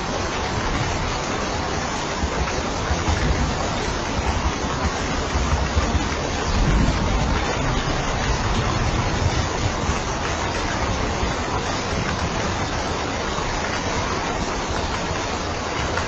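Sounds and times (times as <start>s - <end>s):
steady rain hiss: 0.0s - 16.0s
low rumble: 2.9s - 12.7s.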